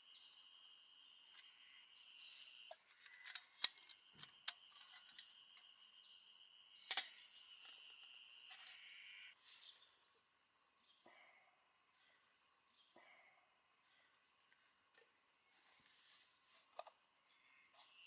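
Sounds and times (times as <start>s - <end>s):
bird chirp: 0.0s - 14.7s, 17.2s - 18.0s.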